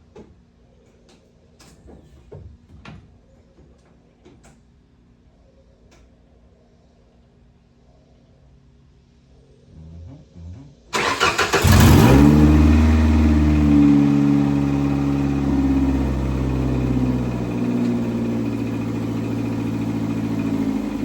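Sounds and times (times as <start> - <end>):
starter cranking race car engine: 11.0 - 21.0
race car engine idling: 11.2 - 21.0.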